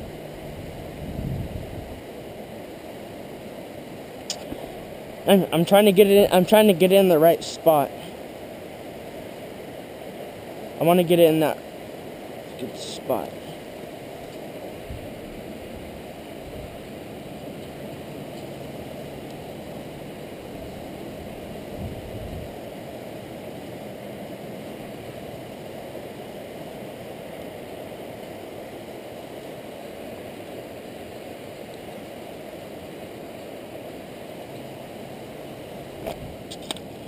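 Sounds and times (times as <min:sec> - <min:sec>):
river rushing over riffles: 0:00.0 - 0:37.0.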